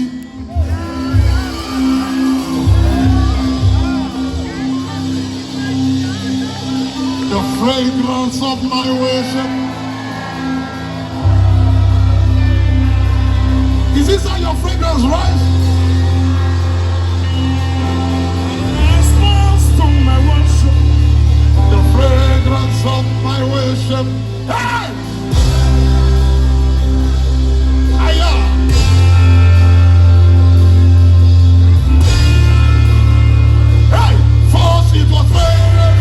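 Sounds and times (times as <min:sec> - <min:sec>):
person singing: 0:00.0 - 0:13.9, 0:33.9 - 0:36.0
deep sustained bass chords: 0:00.0 - 0:36.0
gospel band music: 0:00.0 - 0:36.0.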